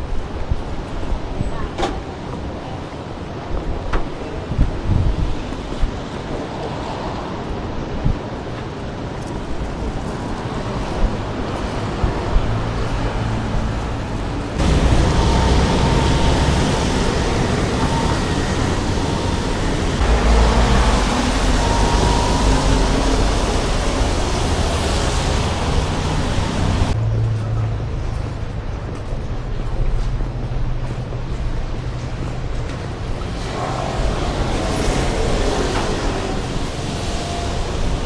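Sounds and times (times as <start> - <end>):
passing vehicles: 9.3 - 28.9, 31.0 - 38.0.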